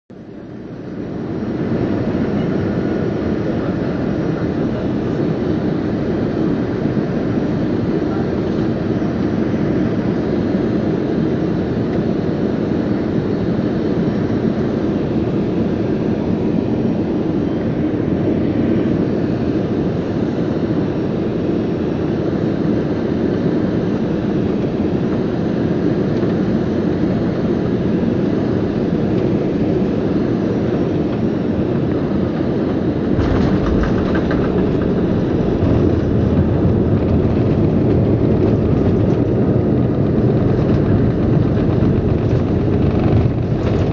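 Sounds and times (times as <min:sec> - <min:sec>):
airplane cabin hum: 0:00.1 - 0:43.9
landing roll rumble: 0:33.1 - 0:43.9
wheels touching down with rattle: 0:33.1 - 0:43.9.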